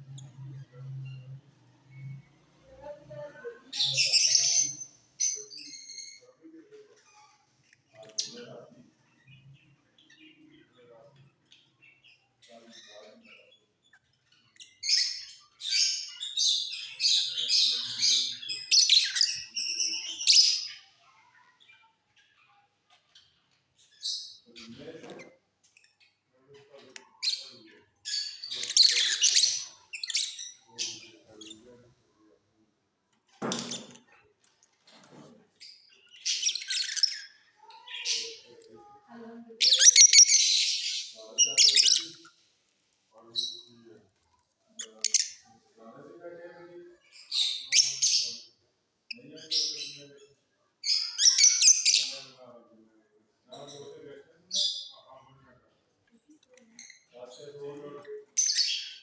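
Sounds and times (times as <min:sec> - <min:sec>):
lovebirds chirping: 0:00.0 - 0:06.3, 0:11.4 - 0:31.8, 0:35.6 - 0:42.5, 0:44.7 - 0:45.6, 0:47.1 - 0:52.4, 0:56.6 - 0:59.0.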